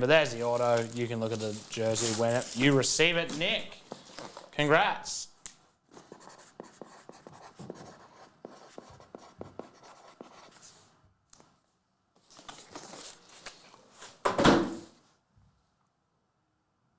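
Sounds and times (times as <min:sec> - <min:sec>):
loud plastic crinkling: 0:00.1 - 0:04.6
plastic packaging rustling: 0:00.1 - 0:04.7, 0:12.2 - 0:14.2.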